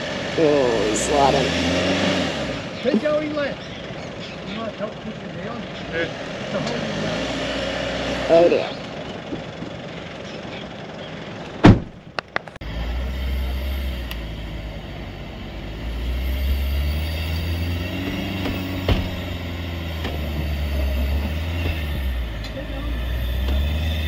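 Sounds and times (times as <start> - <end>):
vehicle engine revving under load: 0.0 - 12.0, 12.6 - 24.0
sharp thump: 11.6 - 12.0, 18.0 - 19.4.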